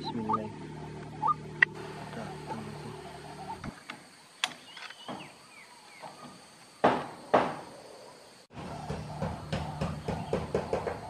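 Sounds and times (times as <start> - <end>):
steady drone: 0.0 - 3.8
birds calling: 0.0 - 11.0
loud sharp knock: 6.8 - 7.6, 8.6 - 11.0.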